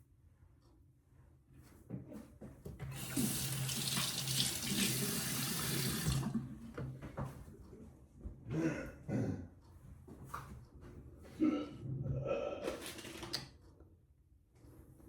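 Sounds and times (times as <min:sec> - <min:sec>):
sink faucet running: 0:02.9 - 0:06.5.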